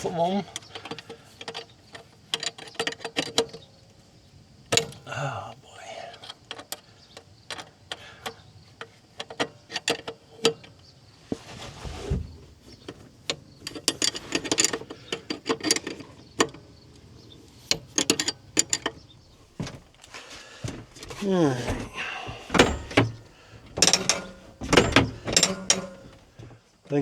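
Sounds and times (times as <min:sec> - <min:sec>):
dull thump: 0:19.5 - 0:26.6.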